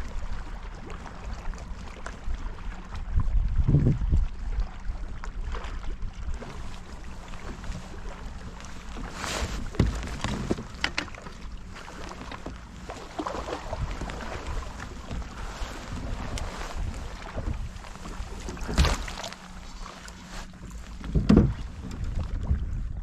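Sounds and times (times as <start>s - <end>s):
water lapping at kayak: 0.0s - 23.0s
wind rumbling on microphone: 0.0s - 23.0s
splashes: 4.5s - 22.4s.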